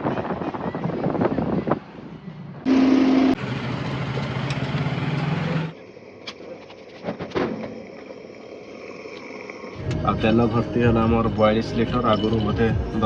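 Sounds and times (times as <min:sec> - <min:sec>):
machine humming: 0:02.7 - 0:04.2.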